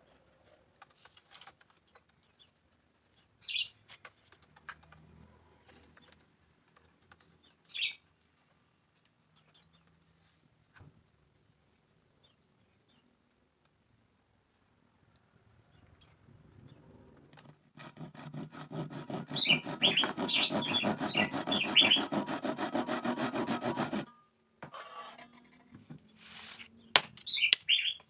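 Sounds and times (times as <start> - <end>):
small birds chirping: 1.0 - 4.9, 5.6 - 8.1, 9.2 - 10.2, 12.2 - 13.2, 15.5 - 17.5, 18.9 - 22.2, 26.0 - 28.0.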